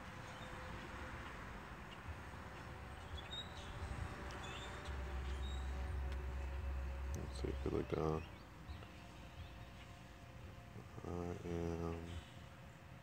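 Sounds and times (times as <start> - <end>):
outdoor background hiss: 0.0 - 13.0
wind rumble on microphone: 2.1 - 7.6.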